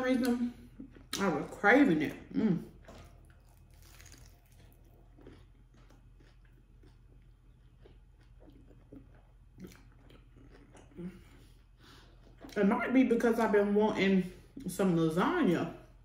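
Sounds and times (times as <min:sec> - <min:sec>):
faint chewing: 0:02.7 - 0:12.6.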